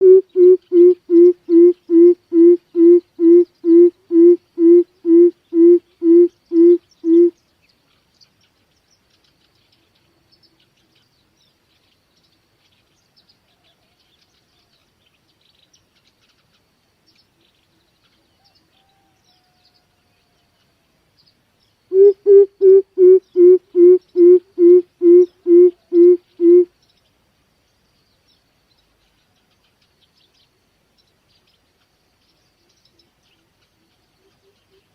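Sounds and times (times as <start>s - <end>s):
bird deep hoots: 0.0s - 7.3s, 21.9s - 26.7s
faint high chirps: 0.0s - 11.1s, 11.7s - 27.1s
insects: 0.0s - 34.9s.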